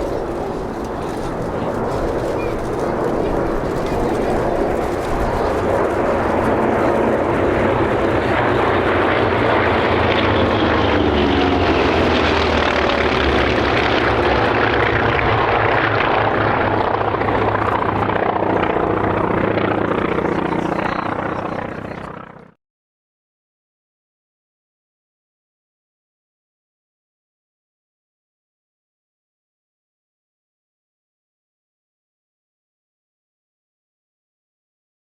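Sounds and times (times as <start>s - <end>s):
propeller aircraft passing: 0.0s - 22.6s.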